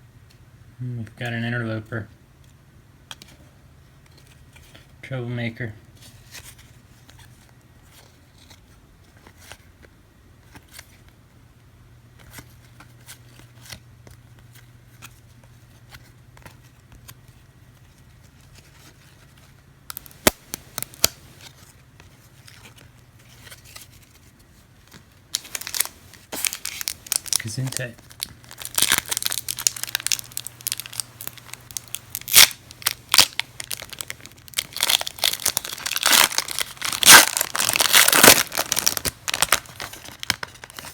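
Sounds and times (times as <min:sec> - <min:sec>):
low steady hum: 0:00.0 - 0:40.9
foil wrapper crinkling: 0:18.3 - 0:21.7, 0:24.9 - 0:40.9
cards snapping: 0:19.9 - 0:21.5, 0:24.9 - 0:40.9.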